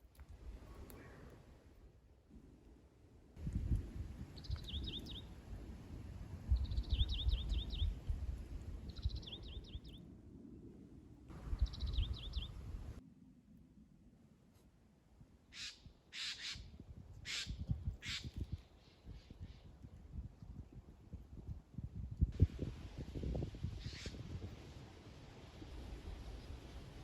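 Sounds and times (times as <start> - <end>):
songbird singing: 4.3 - 5.4, 6.5 - 8.1, 8.8 - 10.0, 11.3 - 12.8.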